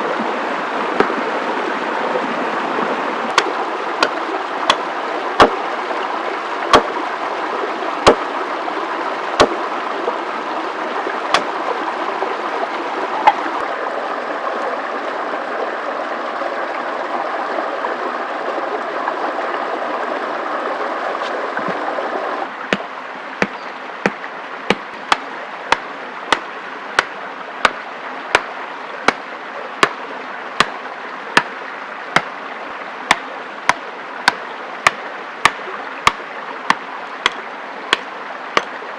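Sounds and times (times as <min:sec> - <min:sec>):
rushing water: 0:00.0 - 0:38.9
sharp knocks: 0:22.7 - 0:27.8.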